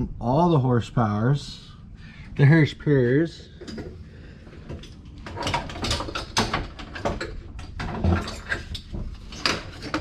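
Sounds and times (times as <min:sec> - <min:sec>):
metal clanking and rattling: 0:04.7 - 0:10.0.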